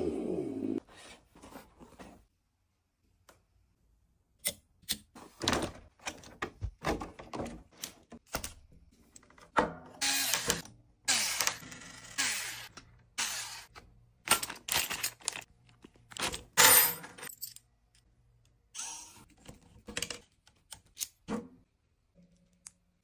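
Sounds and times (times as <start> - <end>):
small hard parts clicking and knocking: 14.2 - 18.1.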